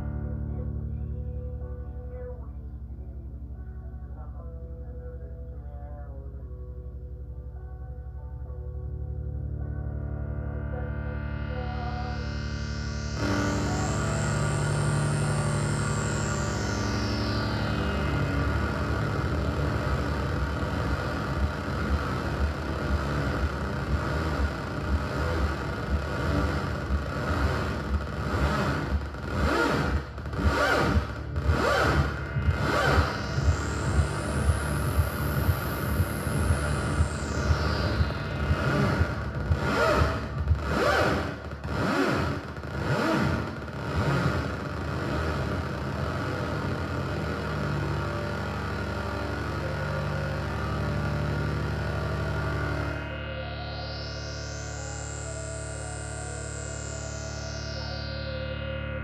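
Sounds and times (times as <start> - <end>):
buzzing low synth over drone: 0.0 - 59.0
synthesized heartbeat thumps: 12.8 - 44.6.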